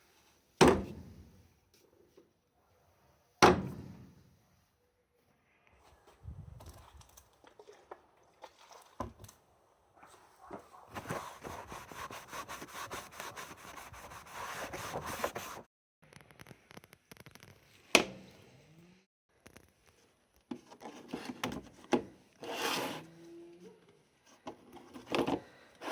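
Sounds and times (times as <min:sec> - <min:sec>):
scratchy rubbing: 0:10.8 - 0:15.7.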